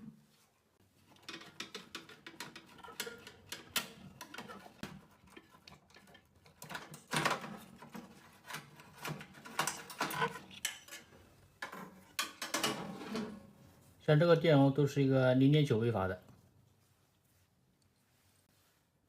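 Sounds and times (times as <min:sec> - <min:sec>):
hand tools and metal parts clicking: 0:01.0 - 0:13.3.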